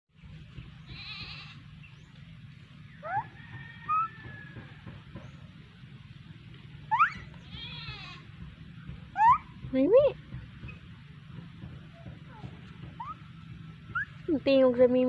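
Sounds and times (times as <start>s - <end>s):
goat bleating: 0.9s - 1.6s, 7.2s - 8.3s
short rising squeaks: 13.0s - 14.3s.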